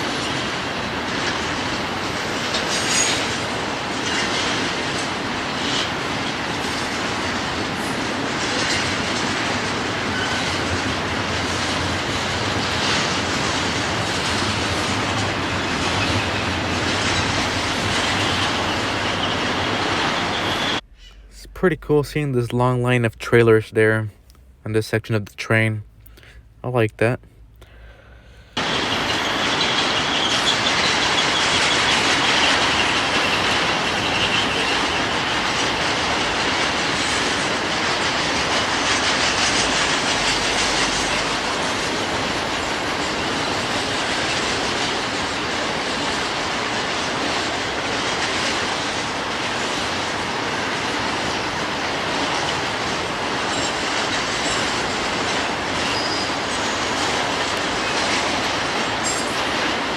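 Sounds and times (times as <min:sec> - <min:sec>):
freight train wheels rumbling on rail: 0:00.0 - 0:24.4, 0:28.6 - 0:59.9
high wheel squeal: 0:02.2 - 0:04.7, 0:10.0 - 0:10.8, 0:14.7 - 0:21.3, 0:28.6 - 0:37.5, 0:53.4 - 0:59.5.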